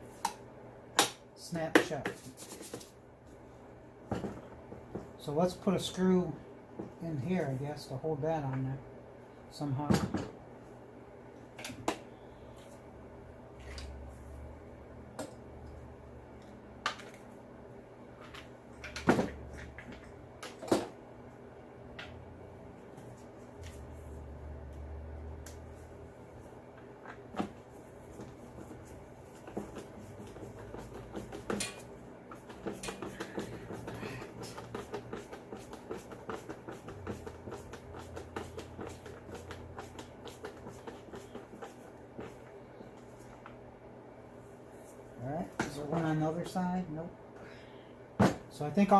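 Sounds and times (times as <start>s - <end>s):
faint steady hum: 0.0s - 48.9s.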